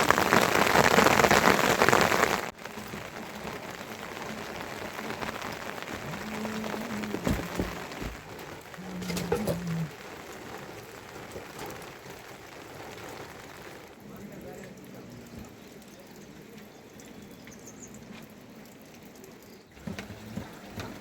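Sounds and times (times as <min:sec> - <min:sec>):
heavy rain falling: 0:00.0 - 0:21.0
dull thumps: 0:06.6 - 0:09.9.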